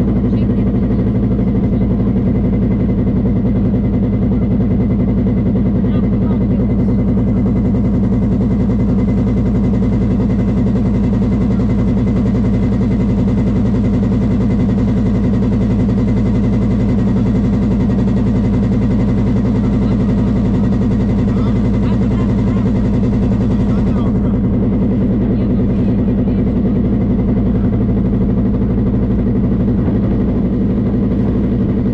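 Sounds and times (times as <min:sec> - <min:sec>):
boat engine running: 0:00.0 - 0:31.9.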